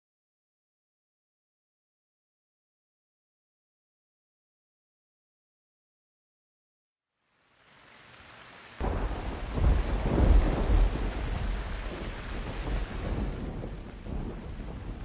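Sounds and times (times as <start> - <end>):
heavy rain: 7.3 - 15.0
rolling thunder: 8.8 - 15.0.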